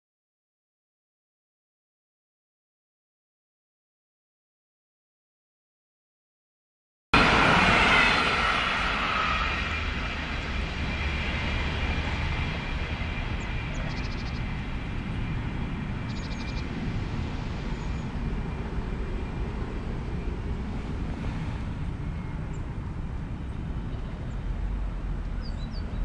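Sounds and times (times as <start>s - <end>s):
railcar passing: 7.2s - 26.0s.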